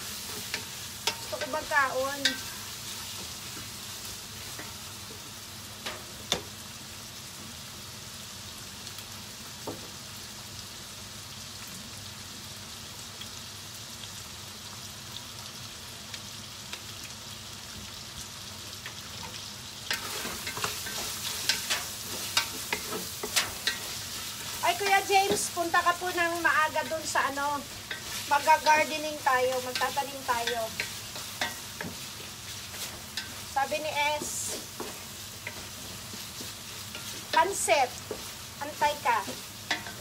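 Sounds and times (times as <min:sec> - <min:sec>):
chicken sizzling in oil: 0:00.0 - 0:40.0
wooden spatula scraping a pot: 0:19.9 - 0:25.6, 0:27.7 - 0:40.0.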